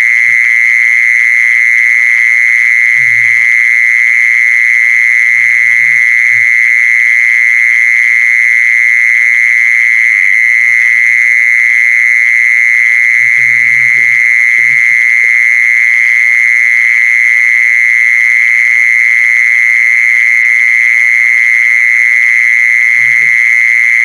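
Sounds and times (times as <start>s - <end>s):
insect high-pitched trill: 0.0s - 24.0s.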